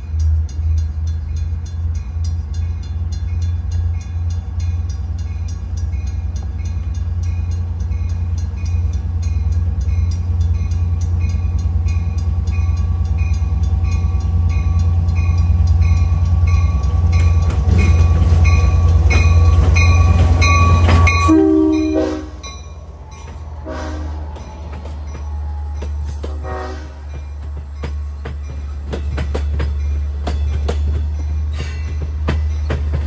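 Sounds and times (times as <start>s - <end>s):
diesel locomotive engine: 0.0s - 33.0s
locomotive bell ringing: 0.0s - 33.0s
train horn blasts: 20.7s - 22.6s, 23.6s - 24.4s, 26.2s - 27.2s.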